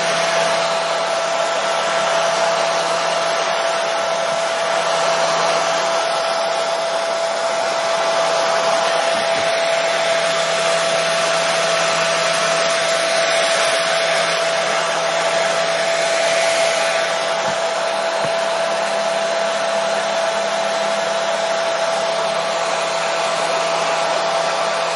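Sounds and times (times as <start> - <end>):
hair dryer blowing air: 0.0 - 24.9.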